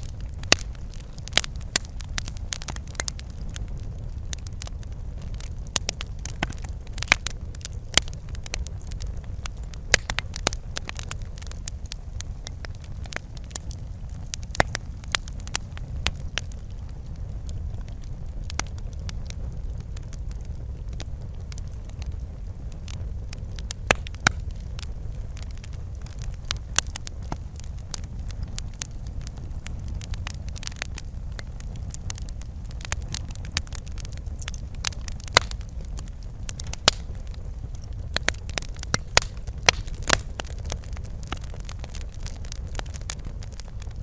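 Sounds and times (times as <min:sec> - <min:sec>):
low rumble of burning: 0:00.0 - 0:44.0
wood fire crackling and popping: 0:00.0 - 0:44.0.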